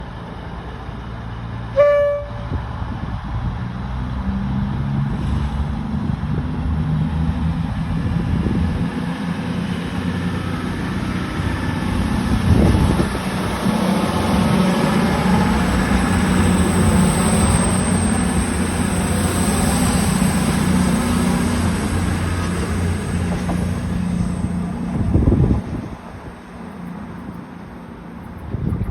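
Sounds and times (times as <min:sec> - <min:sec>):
diesel engines droning: 0:00.0 - 0:28.9
train horn tone: 0:01.7 - 0:02.6.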